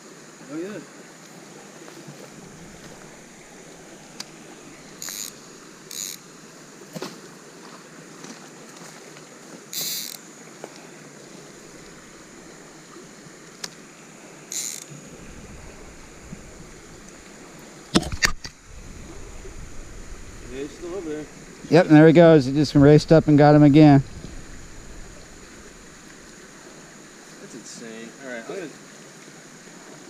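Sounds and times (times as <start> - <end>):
faint high whine: 0.0 - 6.7, 9.8 - 28.7
steady creek hiss: 0.0 - 30.0
short high-pitched hissing bursts: 2.4 - 6.2, 9.8 - 10.2, 14.5 - 17.8.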